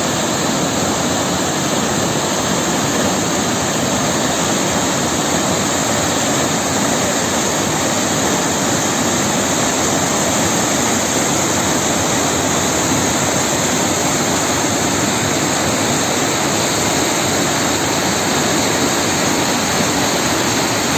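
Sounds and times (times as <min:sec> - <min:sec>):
water rushing over weir: 0:00.0 - 0:20.9.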